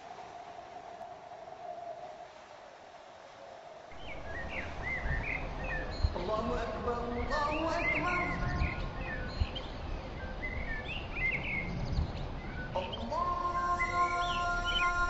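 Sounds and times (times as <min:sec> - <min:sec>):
steady background noise: 0:00.0 - 0:15.0
birds chirping: 0:03.9 - 0:15.0.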